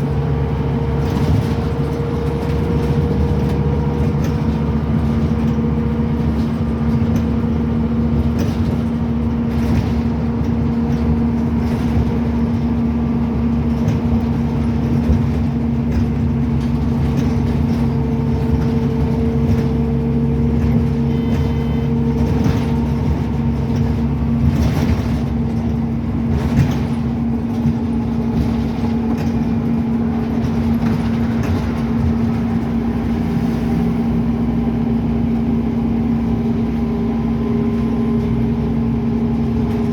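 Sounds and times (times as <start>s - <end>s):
bus diesel engine droning: 0.0s - 39.9s
body knocks and rattles: 1.0s - 32.7s.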